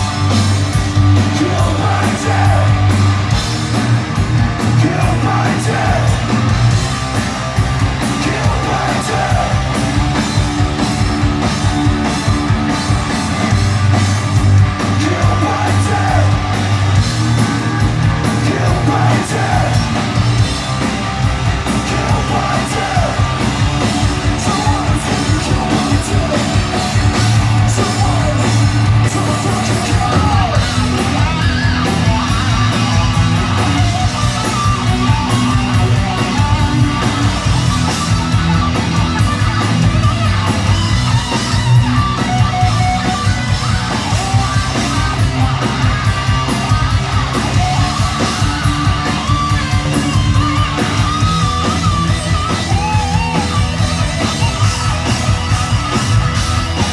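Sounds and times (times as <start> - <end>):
bass guitar: 0.0 - 56.9
distorted electric guitars: 0.0 - 56.9
drums: 0.0 - 56.9
person singing: 15.0 - 16.4.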